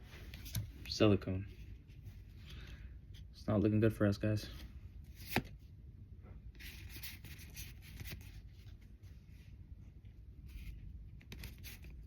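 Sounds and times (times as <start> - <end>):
cards rubbing and scraping: 6.6 - 8.8, 10.5 - 12.0.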